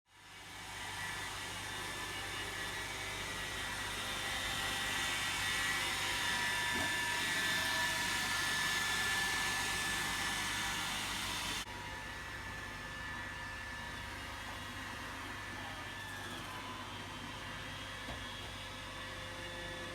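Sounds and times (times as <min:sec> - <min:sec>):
robot vacuum motor whirring: 0:00.9 - 0:11.7.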